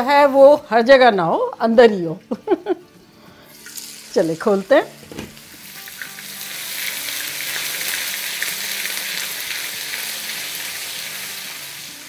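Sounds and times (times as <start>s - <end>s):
paste sizzling in hot oil: 3.5s - 4.8s, 5.4s - 12.0s.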